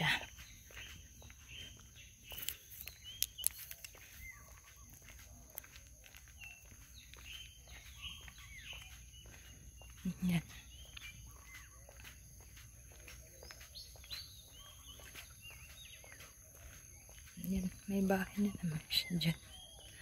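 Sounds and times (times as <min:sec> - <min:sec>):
faint birds chirping: 0:00.0 - 0:20.0
sharp clicks: 0:02.4 - 0:04.0.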